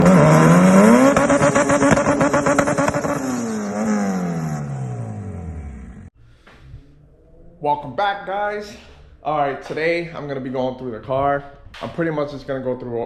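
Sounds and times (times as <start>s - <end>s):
car engine revving: 0.0s - 7.9s.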